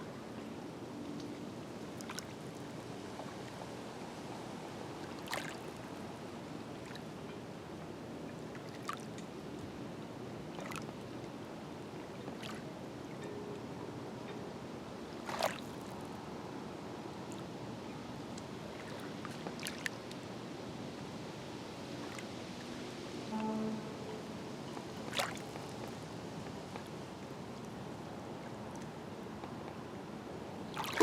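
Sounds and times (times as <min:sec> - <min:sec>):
waves lapping at shore: 0:01.6 - 0:12.9, 0:15.0 - 0:31.0
water splashes and plops: 0:05.0 - 0:05.8, 0:08.5 - 0:09.2, 0:10.5 - 0:11.0, 0:12.0 - 0:12.6, 0:15.2 - 0:16.0, 0:18.7 - 0:20.2, 0:25.0 - 0:26.0, 0:30.7 - 0:31.0.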